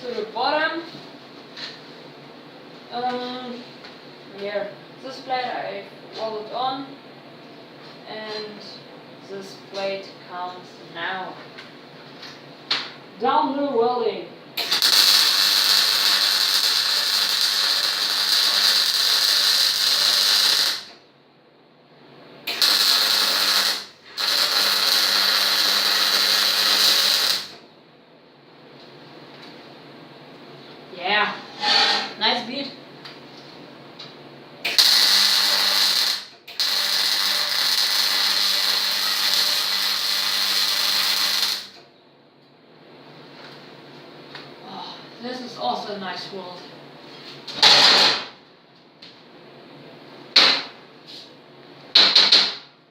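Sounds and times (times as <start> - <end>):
welding arc crackling: 14.6 - 21.0, 22.5 - 27.6, 34.6 - 41.8.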